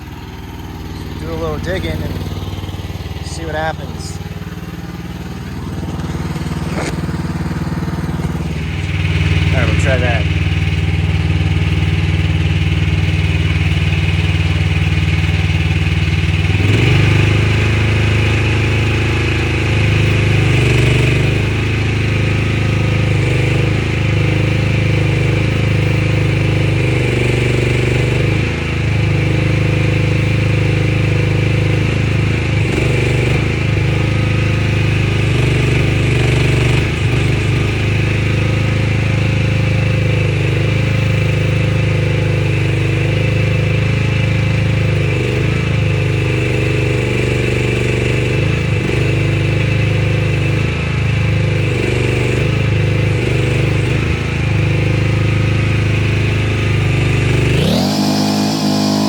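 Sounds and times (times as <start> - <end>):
mini excavator engine under load: 0.0 - 12.3, 56.4 - 59.0.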